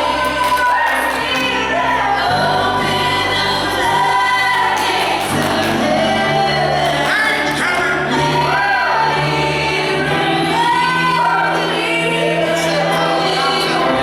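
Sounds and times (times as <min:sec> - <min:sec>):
choir singing gospel: 0:00.0 - 0:14.0.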